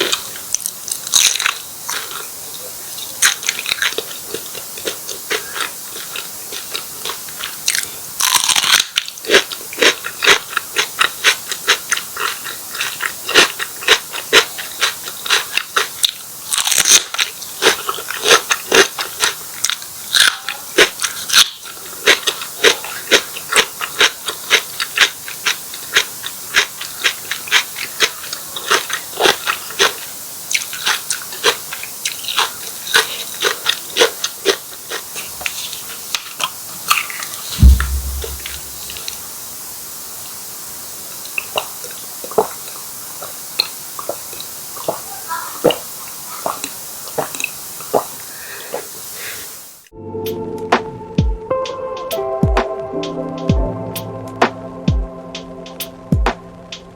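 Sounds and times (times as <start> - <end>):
crunchy chewing: 0.0 - 38.8.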